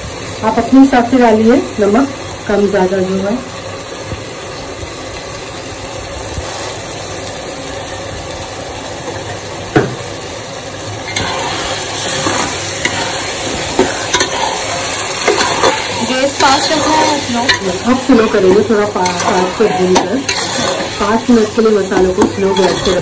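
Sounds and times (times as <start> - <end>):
masala sizzling in oil: 0.0 - 23.0
metal spatula scraping pot: 11.1 - 23.0.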